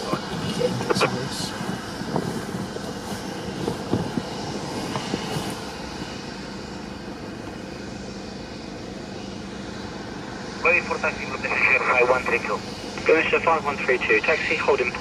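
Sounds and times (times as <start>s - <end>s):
steady rushing noise: 0.0s - 8.8s.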